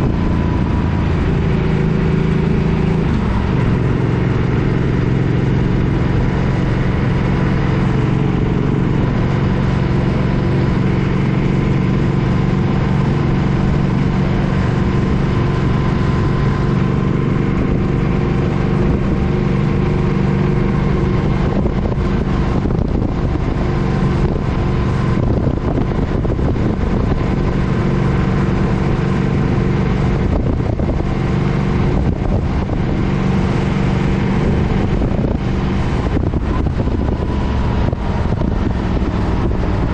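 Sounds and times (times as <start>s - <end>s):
motorcycle engine cruising: 0.0s - 39.9s
wind buffeting microphone: 20.7s - 39.9s.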